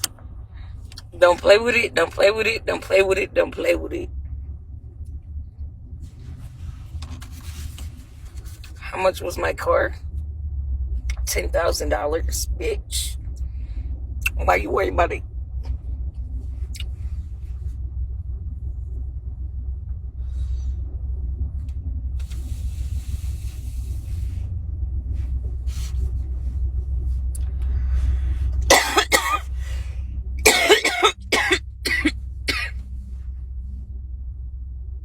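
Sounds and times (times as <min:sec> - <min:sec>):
steady low rumble: 0:00.0 - 0:35.0
person coughing: 0:28.7 - 0:29.5, 0:30.5 - 0:32.8.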